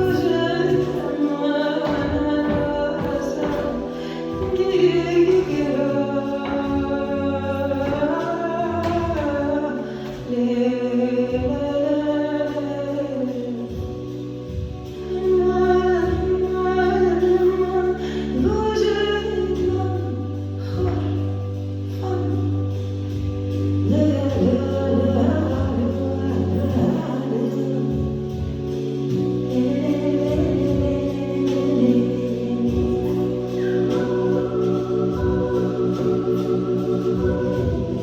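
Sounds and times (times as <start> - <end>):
held bass notes: 0.0 - 38.0
woman singing: 0.0 - 38.0.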